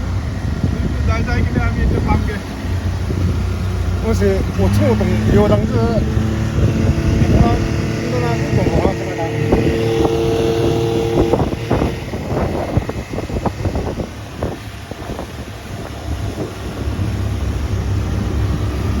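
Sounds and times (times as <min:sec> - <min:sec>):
motorboat engine running: 0:00.0 - 0:19.0
wind buffeting microphone: 0:00.0 - 0:19.0.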